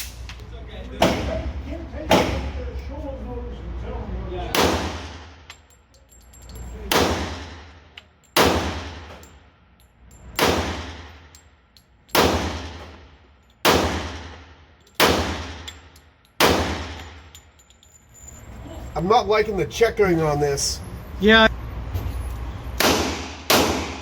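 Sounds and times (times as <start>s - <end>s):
handgun shots echoing indoors: 8.2s - 9.3s, 10.4s - 11.4s, 12.1s - 13.0s, 13.6s - 15.8s, 16.4s - 17.1s, 22.8s - 24.0s.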